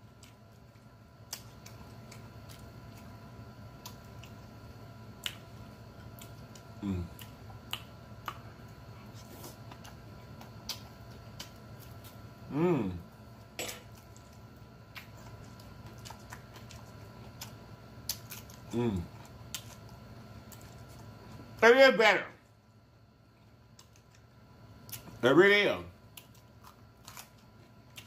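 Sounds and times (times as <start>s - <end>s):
man chewing wet smacks: 0.1s - 4.6s, 5.2s - 12.3s, 13.9s - 21.5s, 23.5s - 25.2s, 26.1s - 28.0s
man humming mm: 6.8s - 7.2s, 12.5s - 13.0s, 18.7s - 19.1s.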